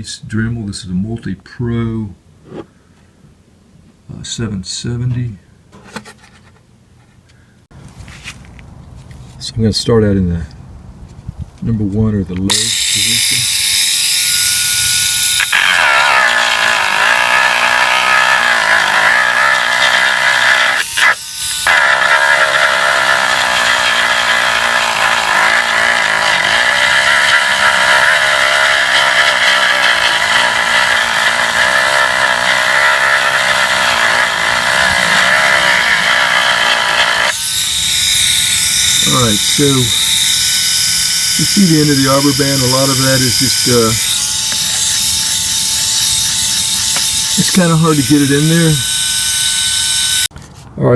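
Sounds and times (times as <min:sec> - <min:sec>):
rotary tool grinding plastic: 0:12.5 - 0:50.3.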